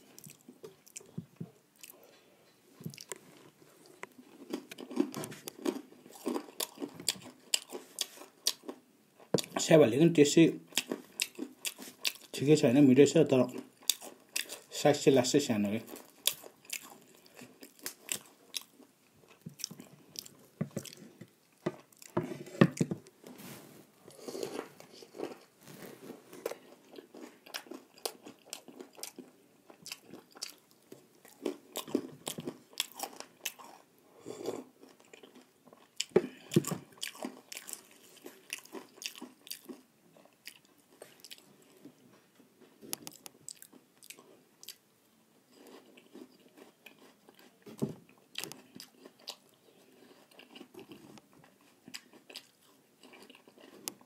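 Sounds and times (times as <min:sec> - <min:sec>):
person crunching fried snacks: 0:02.9 - 0:08.8, 0:10.7 - 0:12.3, 0:15.8 - 0:21.2, 0:24.1 - 0:25.6, 0:26.3 - 0:41.8, 0:45.5 - 0:47.6, 0:48.2 - 0:54.0.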